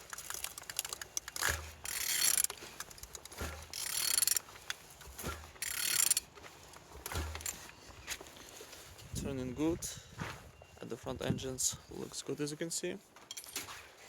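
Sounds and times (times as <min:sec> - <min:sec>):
ratcheting and rubbing: 0:00.0 - 0:07.7.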